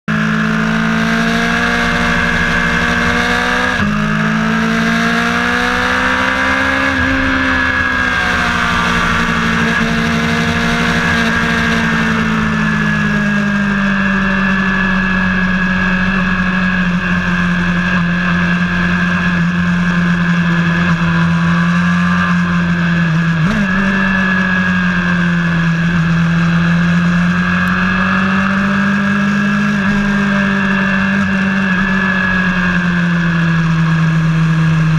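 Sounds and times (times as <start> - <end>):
race car engine revving: 0.1 - 34.9.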